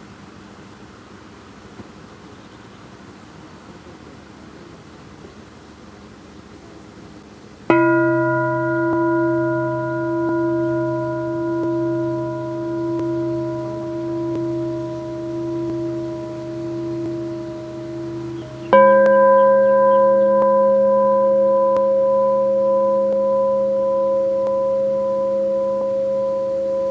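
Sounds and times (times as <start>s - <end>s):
crystal singing bowl ringing: 7.7s - 26.9s.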